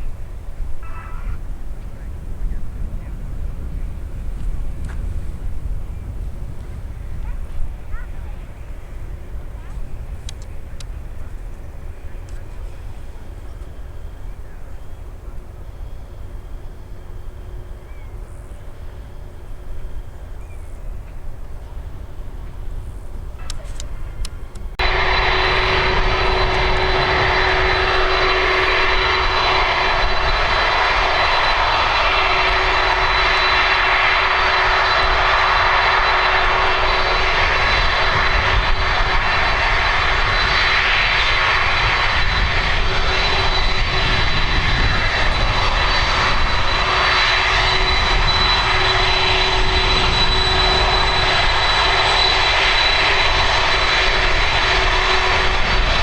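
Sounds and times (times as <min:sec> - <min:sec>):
jet engines running: 0:00.0 - 0:56.0.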